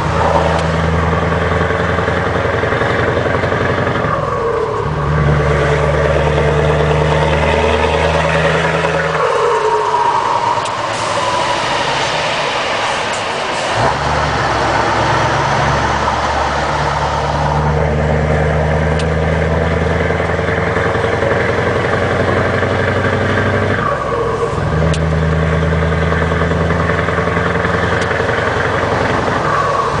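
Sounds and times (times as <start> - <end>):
truck diesel engine running: 0.0 - 30.0.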